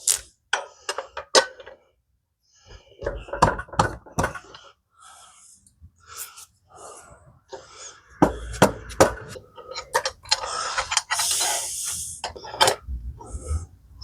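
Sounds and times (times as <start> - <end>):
hissing rush: 10.3 - 13.7.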